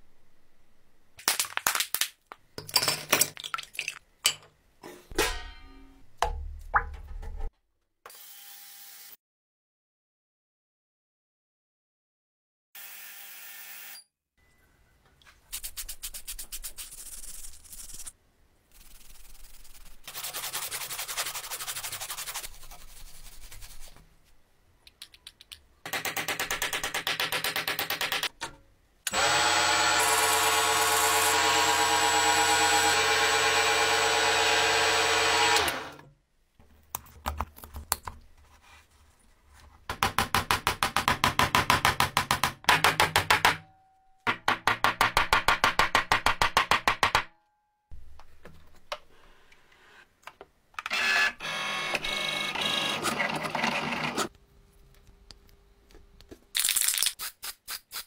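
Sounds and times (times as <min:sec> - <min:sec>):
small power tool running: 0:12.8 - 0:14.0, 0:29.1 - 0:36.0
rasping sanding strokes: 0:18.8 - 0:24.0.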